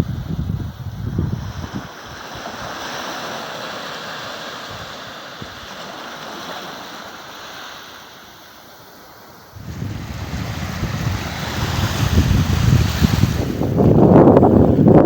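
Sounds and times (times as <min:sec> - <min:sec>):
ocean surf washing in: 0:00.0 - 0:15.0.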